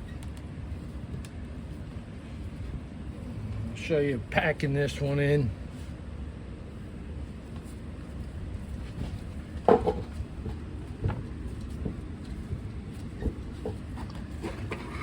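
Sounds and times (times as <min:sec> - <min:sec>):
steady low hum: 0:00.0 - 0:15.0
knocks and clunks: 0:09.6 - 0:11.2.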